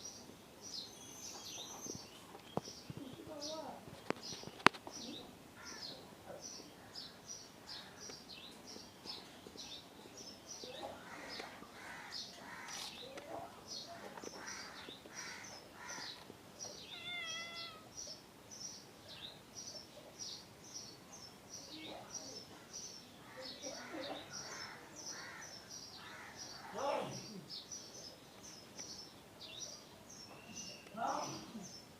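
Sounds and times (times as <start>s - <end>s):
rough bird calls: 10.6s - 18.8s, 22.5s - 29.1s
small bird chirping: 12.2s - 31.9s.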